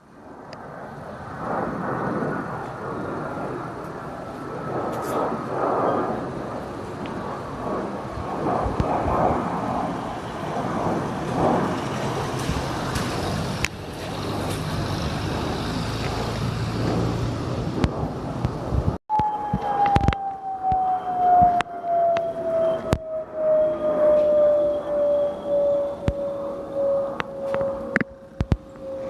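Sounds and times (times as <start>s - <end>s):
airplane engine rumble: 0.0s - 29.0s
high whine falling in pitch: 15.3s - 29.0s.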